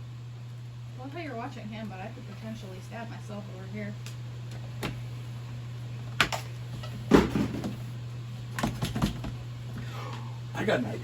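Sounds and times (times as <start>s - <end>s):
steady low hum: 0.0s - 11.0s
kitchen things knocking and clattering: 7.1s - 7.8s.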